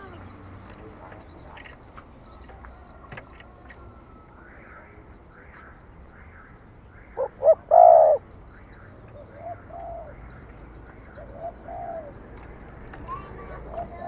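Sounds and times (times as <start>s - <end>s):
small birds chirping: 0.0s - 14.0s
dove cooing: 7.2s - 8.2s, 9.2s - 12.4s, 13.2s - 14.0s.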